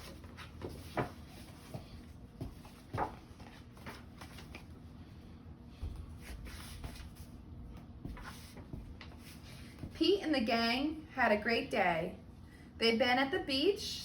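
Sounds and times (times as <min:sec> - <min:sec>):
paper pages rustling: 0:00.0 - 0:04.8.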